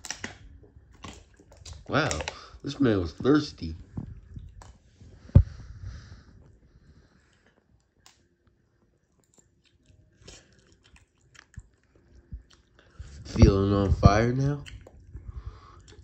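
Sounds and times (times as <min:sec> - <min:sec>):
person chewing noodles: 0:07.1 - 0:13.2, 0:14.5 - 0:16.0.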